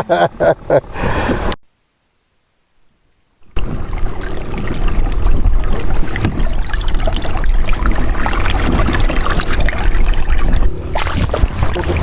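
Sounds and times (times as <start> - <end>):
water splashing and trickling: 3.5 - 12.0.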